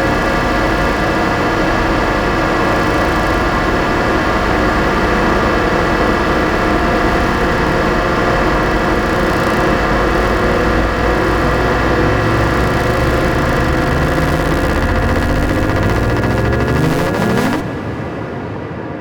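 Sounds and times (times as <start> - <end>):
dense electronic drone: 9.0 - 18.4.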